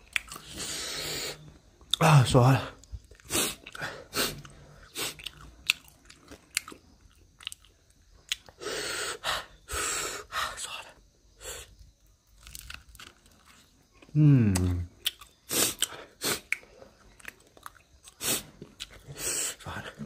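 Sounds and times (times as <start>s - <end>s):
person chewing food: 0.0s - 2.0s, 2.8s - 8.6s, 12.2s - 19.6s.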